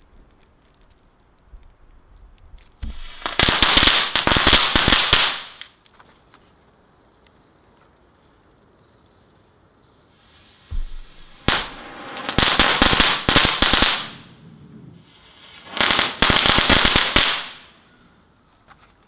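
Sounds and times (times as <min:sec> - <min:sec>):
firework hiss: 0:02.7 - 0:05.7, 0:10.0 - 0:17.7
low firework thud: 0:02.8 - 0:03.2, 0:10.7 - 0:11.9
rapid crackling pops: 0:10.7 - 0:14.6.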